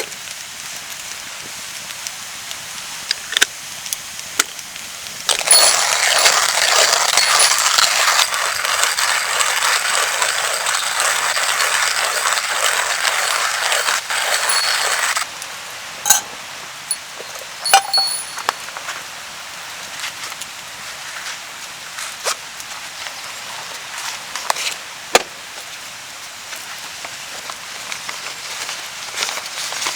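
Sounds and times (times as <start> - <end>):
rain hiss: 0.0 - 29.9
sharp metallic clinks: 5.5 - 8.2, 13.3 - 15.2, 16.9 - 18.5.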